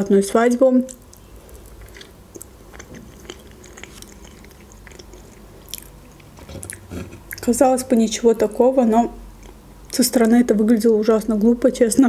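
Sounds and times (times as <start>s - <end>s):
person chewing cake: 0.9s - 7.6s, 9.4s - 10.0s.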